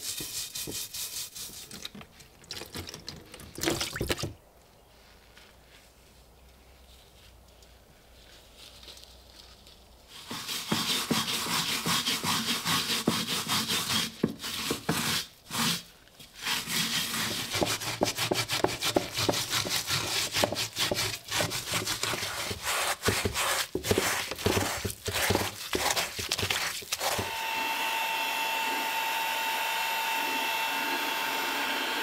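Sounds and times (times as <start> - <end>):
scrubbing rust on steel helmet: 0.0 - 2.4, 7.0 - 27.3.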